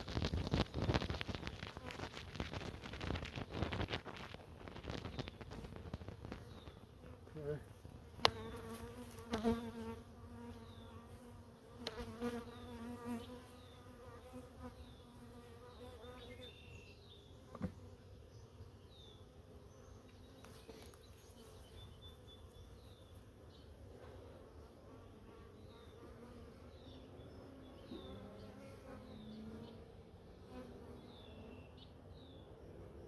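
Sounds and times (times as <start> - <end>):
honeybees buzzing: 0.0 - 31.8.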